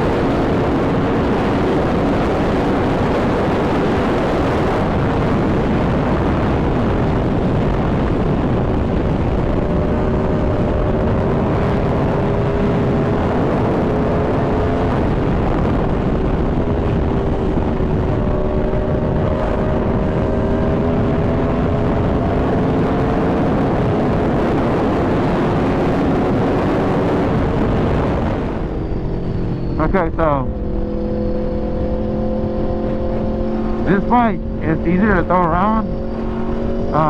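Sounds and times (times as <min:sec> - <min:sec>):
motorcycle engine running hard: 0:00.0 - 0:37.0
wind rushing over microphone: 0:00.0 - 0:37.0.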